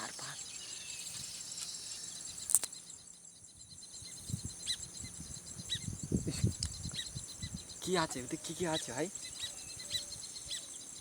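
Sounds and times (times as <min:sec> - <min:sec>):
insects trilling: 0:00.0 - 0:11.0
sharp click: 0:02.5 - 0:02.8.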